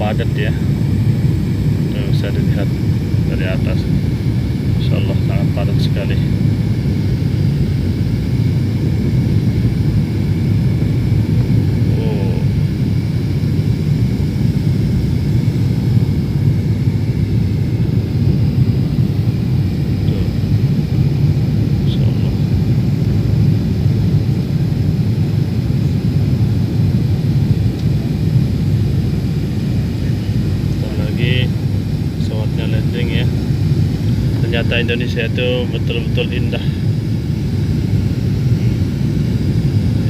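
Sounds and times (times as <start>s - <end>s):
airflow noise: 0.0s - 25.9s, 26.7s - 40.0s
jet engine rumble in cabin: 0.0s - 40.0s.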